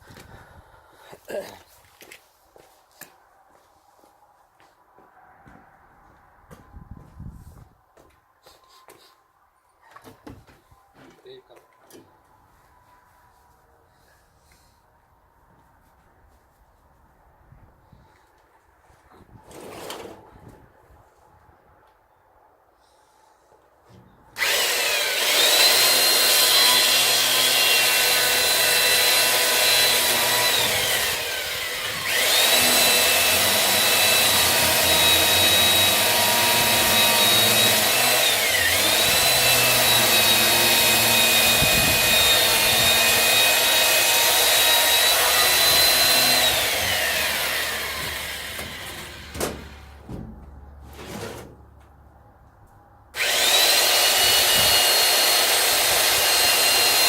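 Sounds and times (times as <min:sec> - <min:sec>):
electric saw cutting wood: 0:24.4 - 0:49.9, 0:53.2 - 0:57.0.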